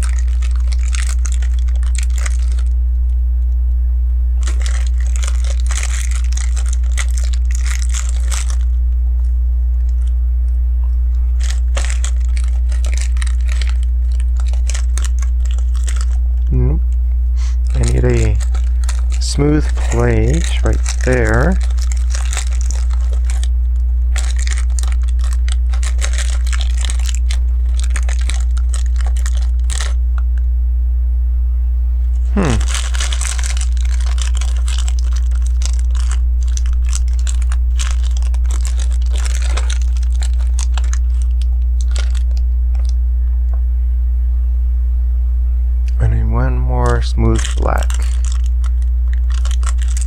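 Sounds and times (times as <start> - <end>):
steady low hum: 0.0 - 50.0
plastic bricks clicking and rattling: 24.2 - 29.9, 32.7 - 42.9, 49.2 - 50.0.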